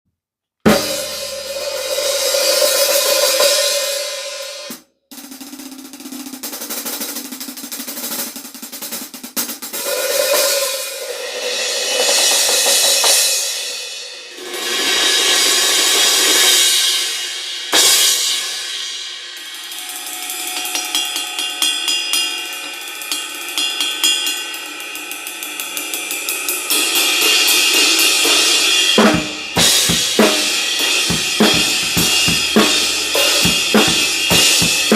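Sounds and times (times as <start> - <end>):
drum hits: 0.7 - 1.4, 29.0 - 34.9
cymbals ringing: 28.9 - 34.9.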